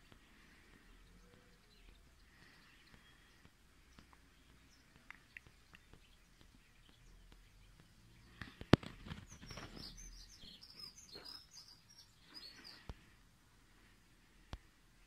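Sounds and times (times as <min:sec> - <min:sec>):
high bird chirps: 0:09.0 - 0:13.0.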